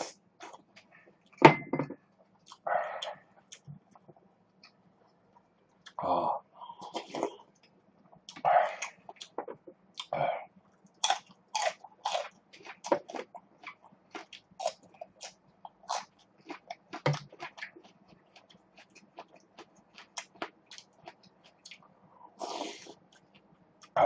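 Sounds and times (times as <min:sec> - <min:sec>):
chewing: 0:10.7 - 0:24.0.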